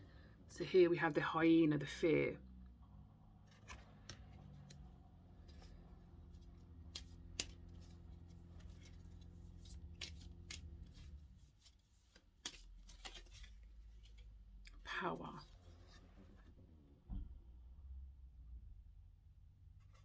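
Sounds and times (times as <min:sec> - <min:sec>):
low steady hum: 0:00.0 - 0:20.0
cards shuffling: 0:03.4 - 0:16.1
card edges clicking and snapping: 0:03.5 - 0:04.9, 0:05.5 - 0:11.1, 0:12.0 - 0:14.8.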